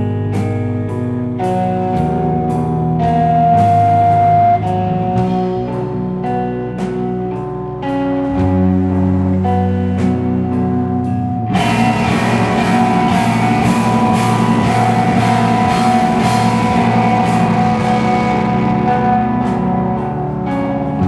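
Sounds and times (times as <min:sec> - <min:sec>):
drums: 0:00.0 - 0:21.0
held guitar and bass notes: 0:00.0 - 0:21.0
loud wall of guitars: 0:00.0 - 0:21.0.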